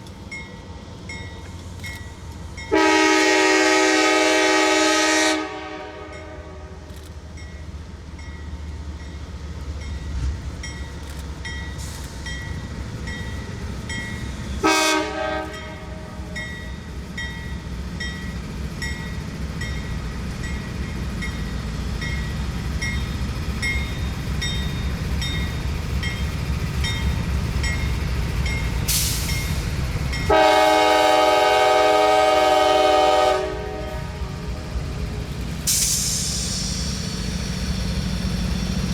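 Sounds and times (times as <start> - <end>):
train rumble: 0.0 - 38.9
locomotive air horn blasts: 2.7 - 6.9, 14.6 - 16.4, 30.3 - 34.6.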